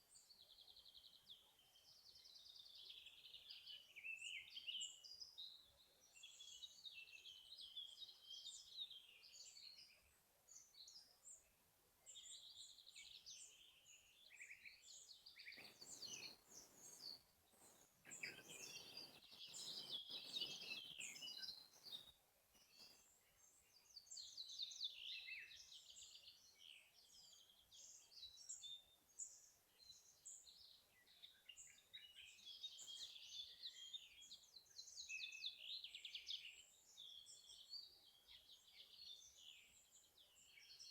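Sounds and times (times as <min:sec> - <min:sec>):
songbirds trilling and chirping: 0:00.0 - 0:40.9
wind rushing through trees: 0:15.6 - 0:22.1.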